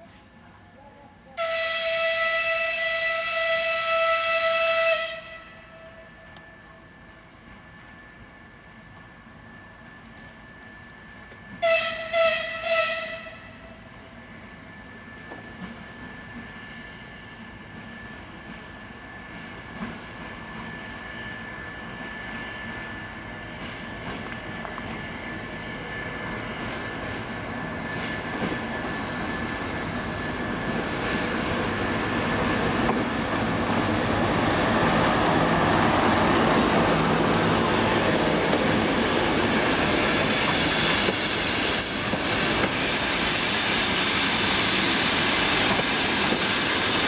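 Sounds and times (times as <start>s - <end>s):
train running noise: 0.0s - 47.0s
diesel locomotive horn blasts: 1.4s - 6.9s, 11.5s - 14.0s.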